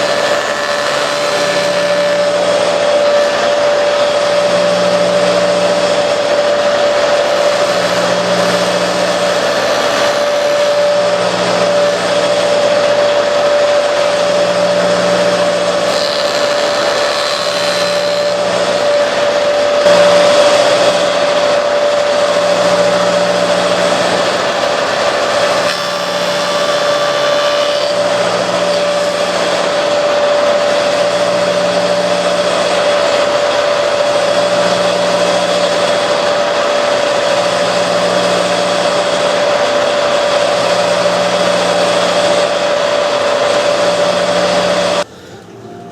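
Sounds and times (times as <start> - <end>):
lathe motor whine: 0.0 - 45.9
machining noise: 0.0 - 45.9.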